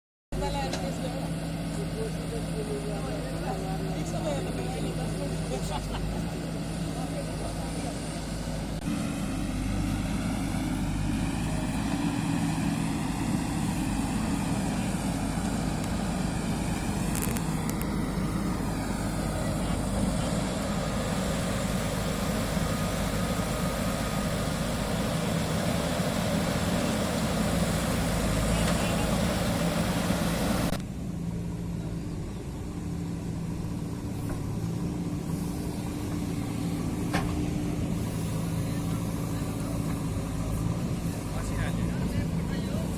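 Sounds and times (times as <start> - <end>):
diesel engine running: 0.4 - 42.9
broad rushing noise: 8.0 - 30.8.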